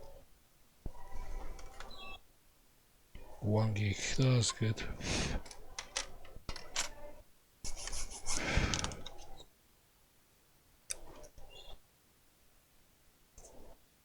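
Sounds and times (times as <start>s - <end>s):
laptop parts rubbing and clicking: 7.7s - 9.4s.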